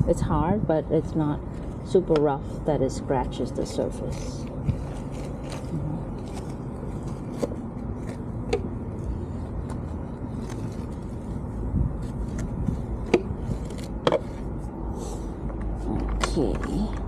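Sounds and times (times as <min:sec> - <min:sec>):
low rumble: 0:03.9 - 0:16.3.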